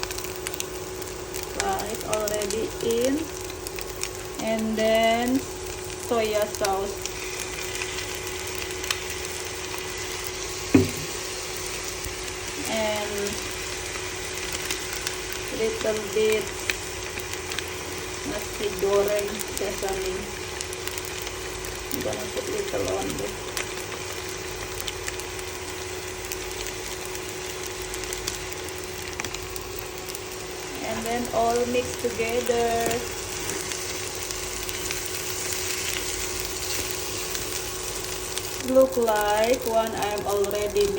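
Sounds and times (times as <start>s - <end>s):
rice sizzling in a pan: 0.0s - 40.9s
steady hum: 0.0s - 40.9s
sharp knock: 10.8s - 11.1s.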